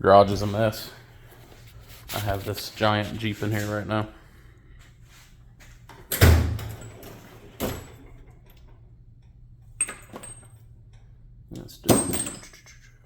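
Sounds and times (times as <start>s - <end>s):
tools clattering in metal chest: 11.8s - 12.6s.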